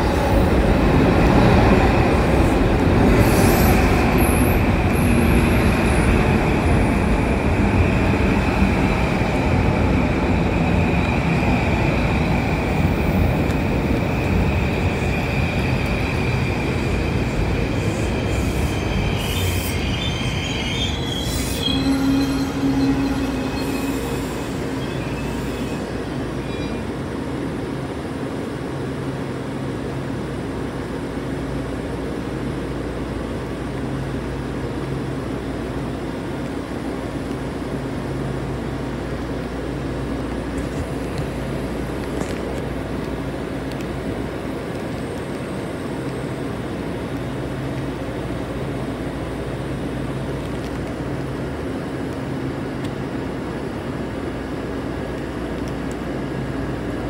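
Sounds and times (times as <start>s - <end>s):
train wheels rumbling on rail: 0.0s - 57.0s
high-pitched wheel squeal: 18.0s - 26.9s.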